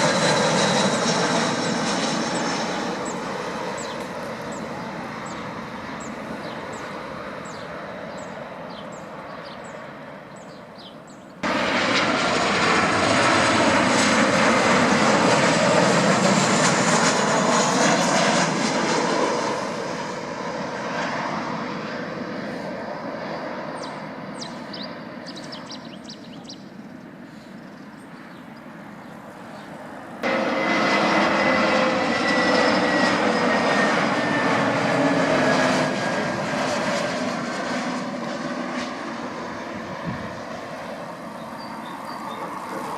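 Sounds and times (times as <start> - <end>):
airplane engine noise: 0.0 - 42.9
falling high engine whine: 11.4 - 21.1, 29.2 - 42.9.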